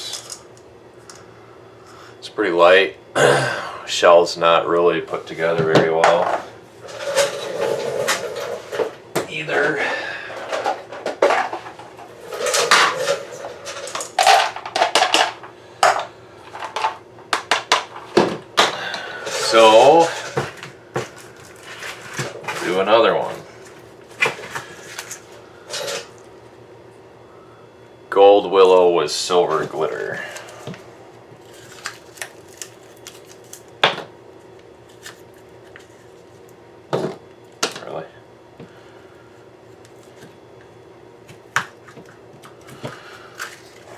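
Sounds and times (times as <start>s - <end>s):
small hard objects clattering on table: 10.4s - 18.7s.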